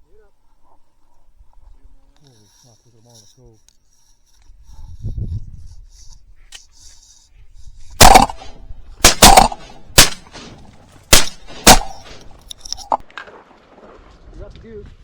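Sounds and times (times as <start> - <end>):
shotgun shots: 8.0 - 13.0.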